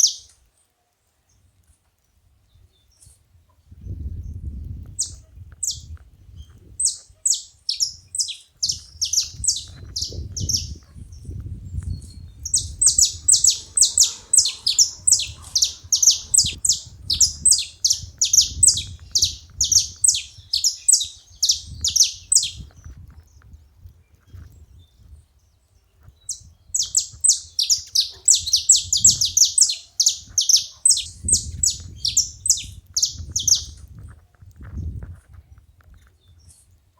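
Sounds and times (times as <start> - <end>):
finches calling: 6.8 - 10.8, 12.3 - 22.6, 26.8 - 33.7.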